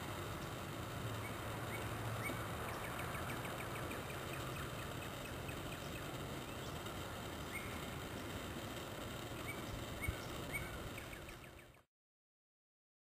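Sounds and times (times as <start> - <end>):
outdoor hiss: 0.0 - 11.9
bird chirps: 1.2 - 6.8, 7.4 - 8.0, 9.4 - 11.8.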